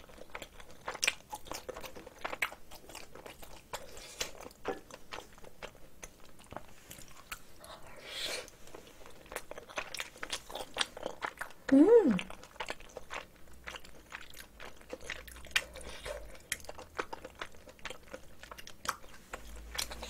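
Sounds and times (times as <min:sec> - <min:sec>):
wet chewing mouth clicks: 0:09.2 - 0:20.0.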